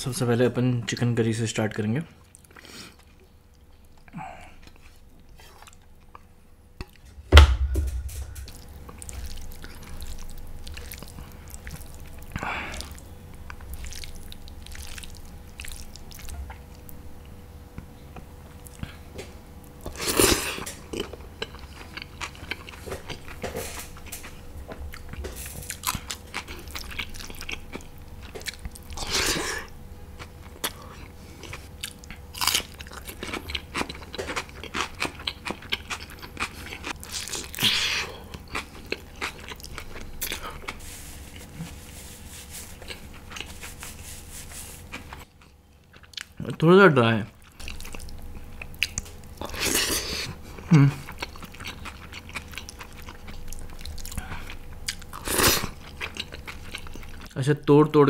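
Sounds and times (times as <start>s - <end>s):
faint steady hum: 0.0s - 58.0s
loud thump: 7.1s - 8.6s
chewing and biting food: 7.8s - 17.0s, 19.8s - 41.8s, 42.6s - 44.0s, 44.6s - 46.6s, 47.3s - 57.3s.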